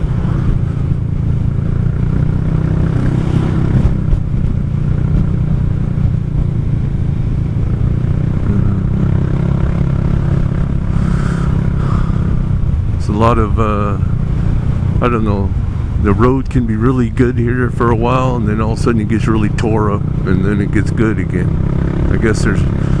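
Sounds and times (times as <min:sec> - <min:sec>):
scooter engine running: 0:00.0 - 0:16.2, 0:17.4 - 0:23.0
wind rush: 0:00.0 - 0:16.7
road noise: 0:00.0 - 0:23.0.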